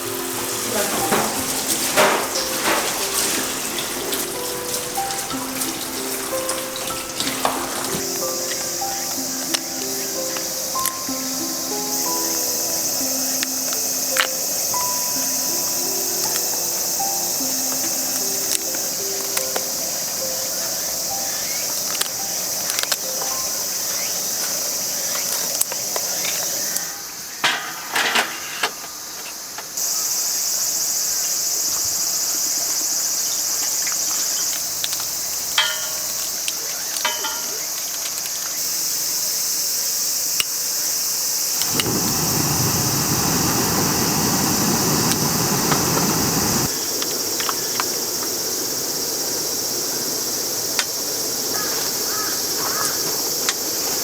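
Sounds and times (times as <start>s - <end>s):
insects chirping: 0.0s - 54.0s
loud rushing noise: 41.6s - 46.7s.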